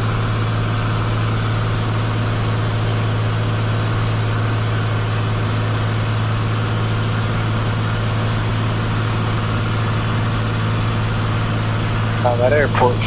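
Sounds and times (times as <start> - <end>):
airplane engine and propeller drone: 0.0 - 13.0.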